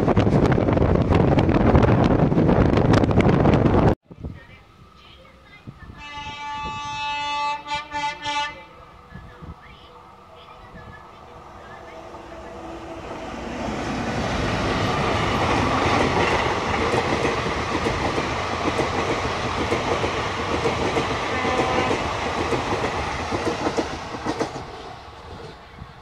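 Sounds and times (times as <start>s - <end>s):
passenger train passing: 0.0s - 26.0s.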